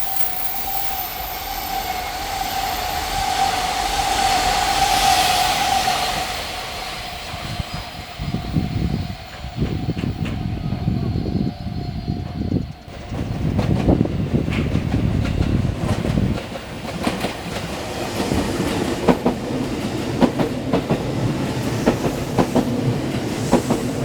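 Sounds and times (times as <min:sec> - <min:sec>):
electric locomotive whine: 0:00.0 - 0:24.0.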